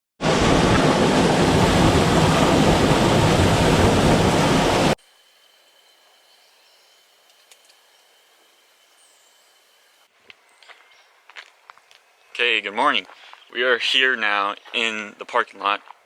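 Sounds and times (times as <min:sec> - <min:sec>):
loud rushing noise: 0:00.2 - 0:05.0
thin steady tone: 0:05.0 - 0:11.1.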